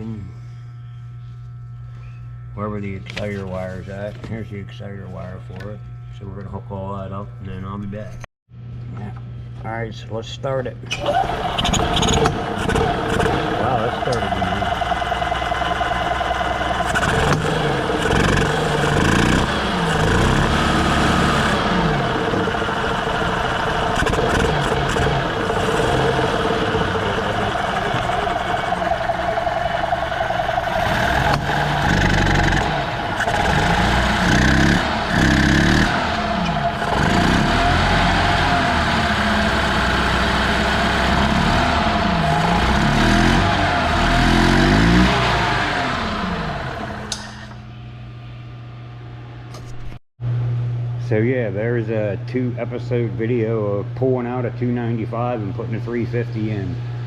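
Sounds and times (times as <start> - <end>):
golf cart engine revving: 10.9 - 47.6.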